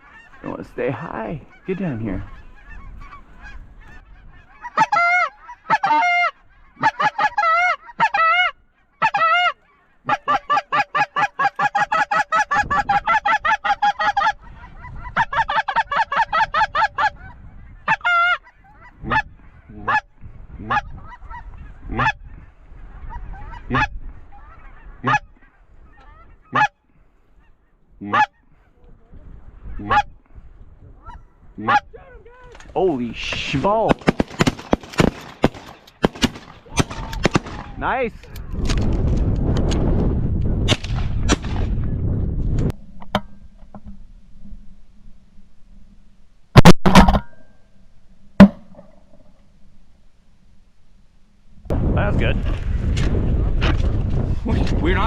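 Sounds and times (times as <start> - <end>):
goose call honks and clucks: 0.0 - 28.9, 29.6 - 30.2, 31.0 - 32.6.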